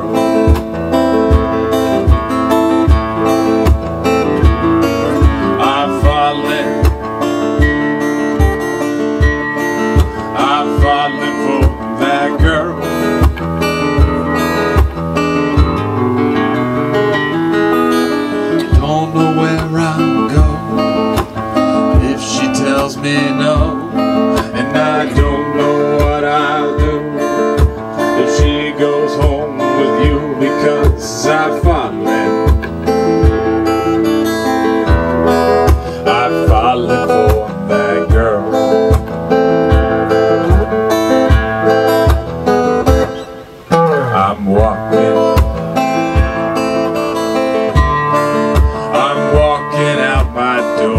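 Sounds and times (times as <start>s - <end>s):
acoustic guitar strummed: 0.0s - 50.9s
man singing: 4.1s - 14.2s, 18.4s - 41.4s, 43.7s - 50.9s.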